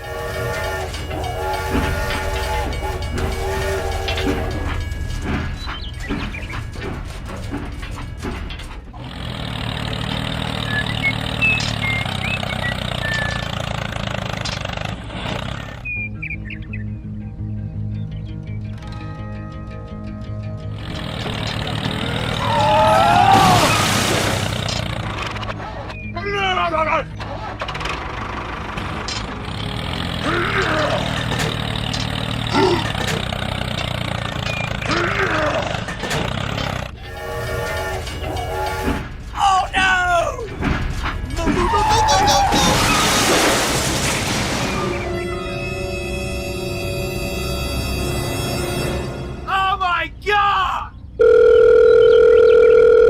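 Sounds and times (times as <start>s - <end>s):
model vehicle engine hum: 0.0s - 16.0s, 20.7s - 23.1s, 27.1s - 39.2s
clicks and knocks: 0.8s - 10.6s, 37.7s - 42.8s
bird chirps: 10.6s - 13.6s, 15.7s - 17.0s.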